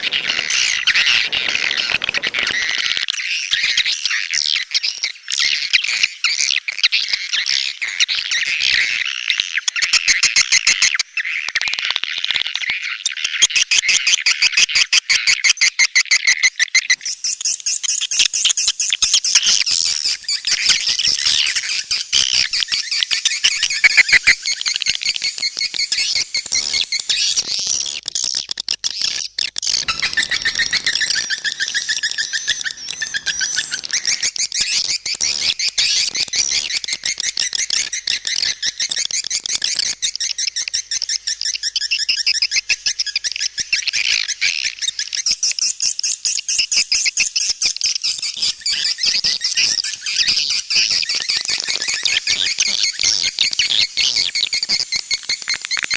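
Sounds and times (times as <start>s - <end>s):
swiftlets twittering: 29.7s - 41.1s.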